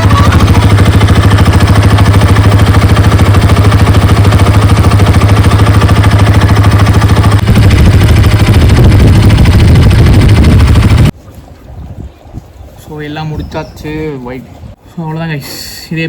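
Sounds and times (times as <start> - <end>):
motorcycle engine idling: 0.0 - 11.1.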